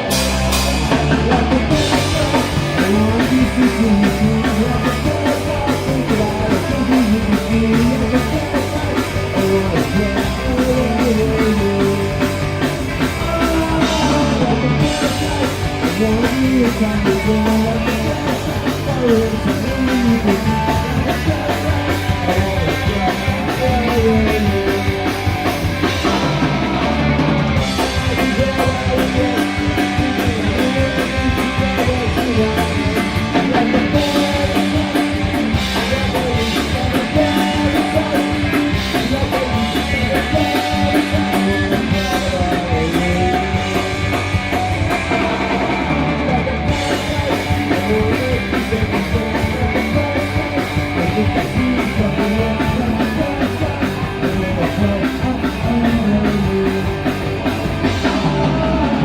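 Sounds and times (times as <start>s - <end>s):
punk rock band playing: 0.0s - 59.0s.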